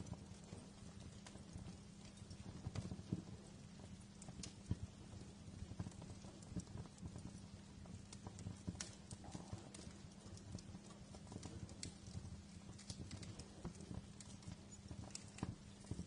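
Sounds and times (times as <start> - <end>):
low rumble of flames: 0.0 - 16.0
wood fire crackling: 0.0 - 16.0.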